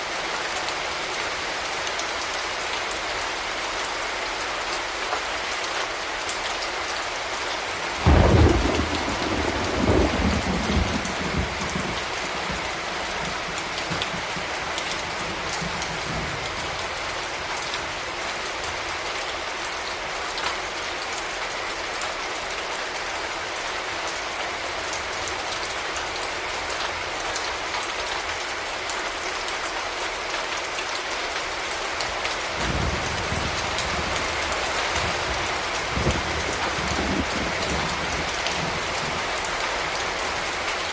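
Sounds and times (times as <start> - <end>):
rain on hard surfaces: 0.0 - 40.9
thunder clap and rumble: 8.0 - 16.8, 32.6 - 39.3.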